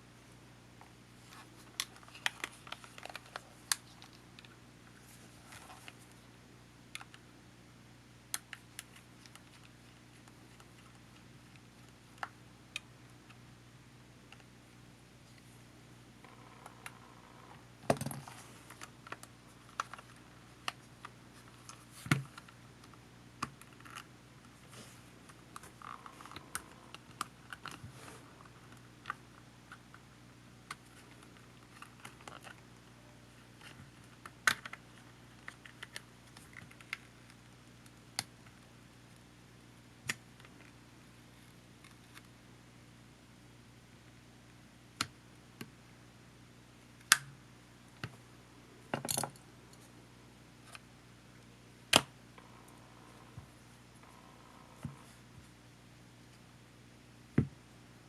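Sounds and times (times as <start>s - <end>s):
faint low hum: 0.0s - 58.0s.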